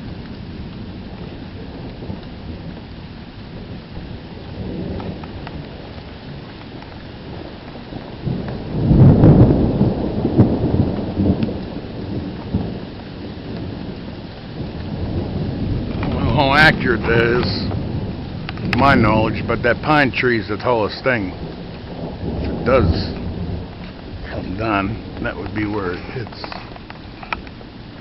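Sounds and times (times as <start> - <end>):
heavy rain: 0.0 - 28.0
rolling thunder: 0.0 - 28.0.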